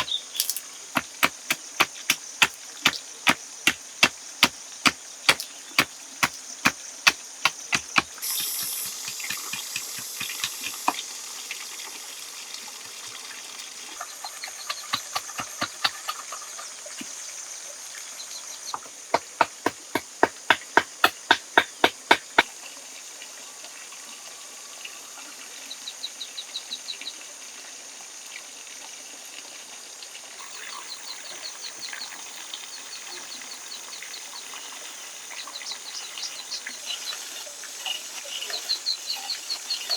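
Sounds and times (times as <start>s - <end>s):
rhythmic chopping strikes: 0.0s - 11.0s, 14.6s - 16.3s, 18.8s - 22.5s
rapid pulsed insect or bird calls: 0.0s - 22.5s, 30.4s - 39.9s
insect hiss: 0.0s - 26.4s, 30.4s - 39.9s.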